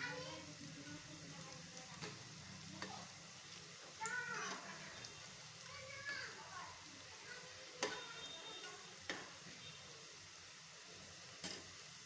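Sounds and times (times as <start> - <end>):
food sizzling in hot oil: 0.0 - 12.0
utensil clicking against pan: 1.9 - 3.0, 7.8 - 8.1, 9.0 - 9.4, 11.4 - 11.8.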